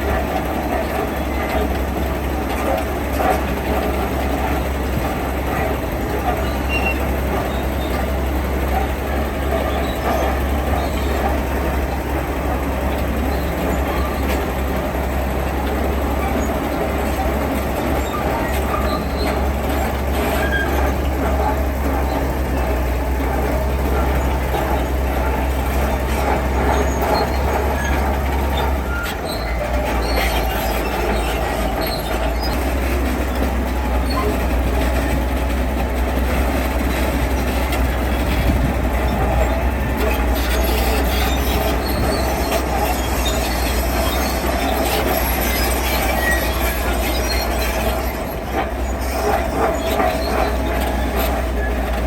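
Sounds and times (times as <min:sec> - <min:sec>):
diesel engine drone: 0:00.0 - 0:52.0
metallic squealing grinding clatter: 0:00.0 - 0:52.0.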